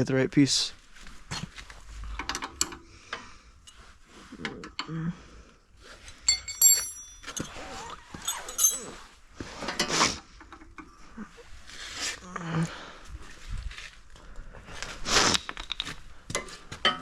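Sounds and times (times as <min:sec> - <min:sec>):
hand tools clicking on metal: 0:06.1 - 0:09.0
short metallic ring: 0:06.3 - 0:09.1.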